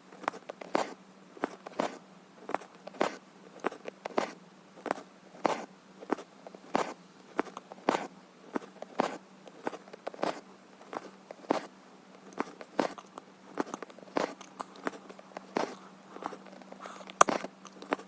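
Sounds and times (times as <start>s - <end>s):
faint steady hum: 0.0s - 18.0s
thread rasping through fabric: 12.3s - 17.6s.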